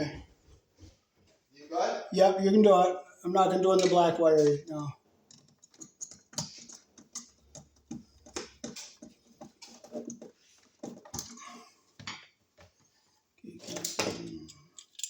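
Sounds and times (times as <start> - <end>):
wires and hand tools clicking: 5.2 - 12.3, 13.6 - 15.0.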